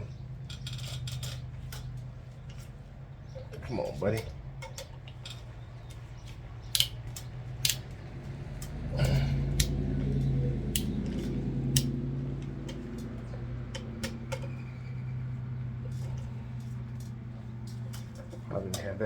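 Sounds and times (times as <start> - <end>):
steady low hum: 0.0 - 19.0
ratchet clicking: 9.6 - 14.7.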